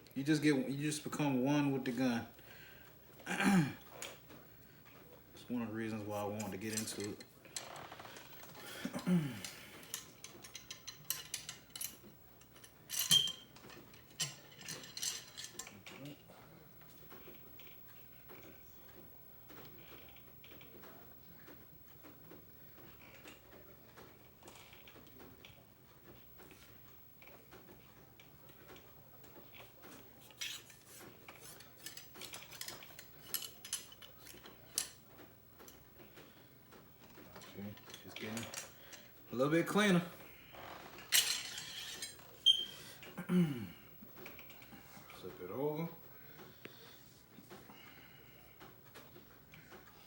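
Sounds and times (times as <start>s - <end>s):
cleaning rod scraping in barrel: 41.3s - 42.9s.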